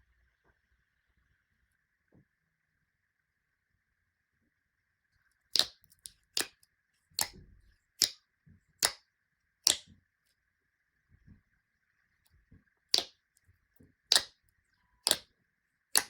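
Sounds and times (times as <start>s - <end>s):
slime popping: 5.6s - 6.5s, 7.2s - 7.4s, 12.9s - 13.1s, 14.1s - 14.3s, 15.0s - 15.2s.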